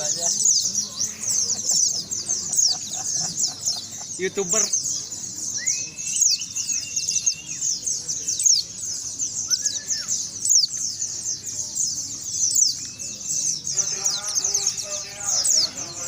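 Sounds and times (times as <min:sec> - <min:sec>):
birds twittering: 0:00.0 - 0:16.0
lower whistled bird notes: 0:04.6 - 0:10.8.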